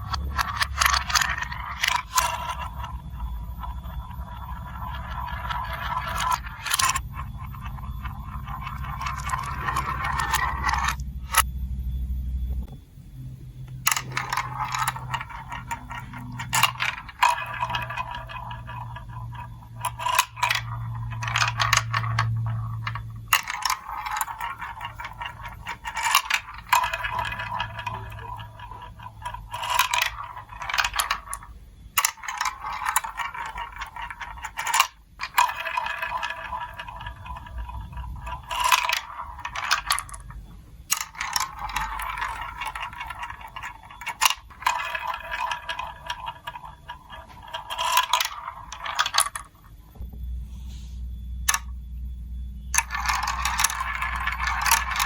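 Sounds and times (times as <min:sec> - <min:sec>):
marbles clicking against pieces: 0:00.0 - 0:11.5, 0:13.7 - 0:49.8, 0:51.5 - 0:51.8, 0:52.7 - 0:55.0
marbles rolling on plastic tracks: 0:00.0 - 0:11.5, 0:13.8 - 0:49.8, 0:51.4 - 0:51.8, 0:52.6 - 0:55.0
low hum: 0:00.0 - 0:55.0.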